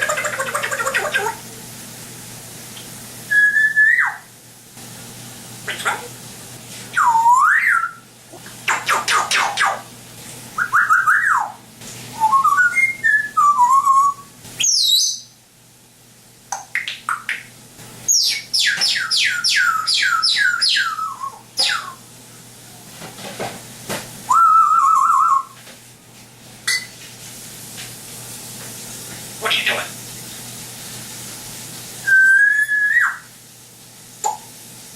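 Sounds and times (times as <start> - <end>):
parrot whistling: 3.3 - 4.3, 6.9 - 8.0, 10.6 - 11.6, 12.2 - 15.3, 18.1 - 22.0, 24.3 - 25.6, 32.0 - 33.3.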